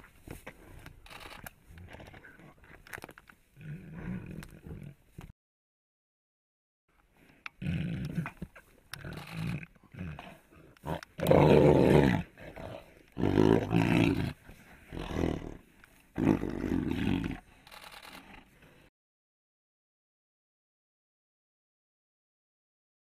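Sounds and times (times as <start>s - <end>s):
tigers growling: 3.6s - 5.0s, 7.5s - 18.7s.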